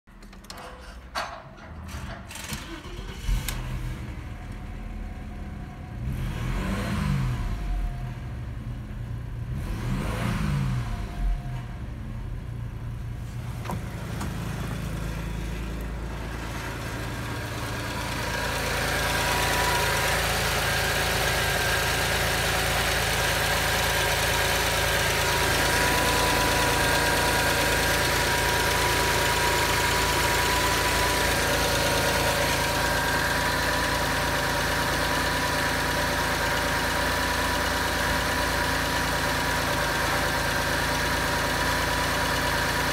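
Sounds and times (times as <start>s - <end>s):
car engine idling: 2.3s - 6.2s, 7.4s - 9.6s, 10.9s - 42.9s.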